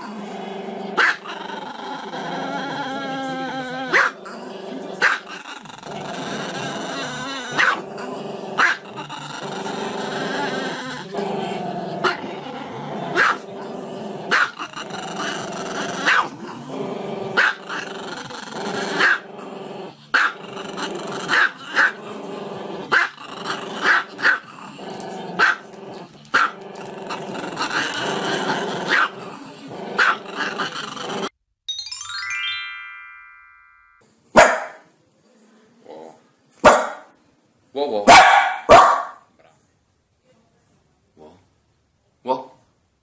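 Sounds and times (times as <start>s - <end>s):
small dog growling: 0.0s - 31.4s
small dog barking: 1.0s - 1.2s, 3.9s - 4.2s, 7.6s - 7.8s, 8.6s - 8.8s, 13.2s - 13.4s, 14.3s - 14.6s, 16.0s - 16.3s, 25.4s - 25.6s, 34.4s - 34.9s, 36.6s - 37.1s, 38.1s - 39.3s.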